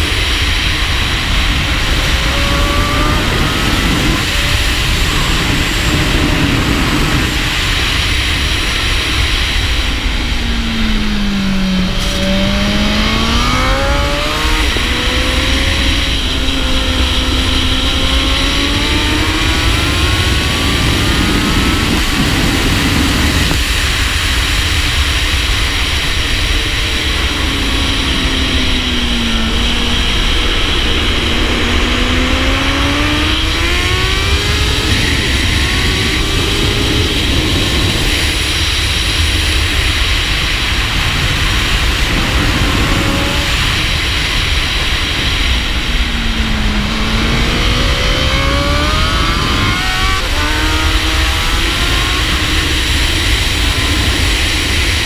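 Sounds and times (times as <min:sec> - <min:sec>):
heavy wind noise: 0:00.0 - 0:55.0
motorcycle engine revving: 0:00.0 - 0:55.0.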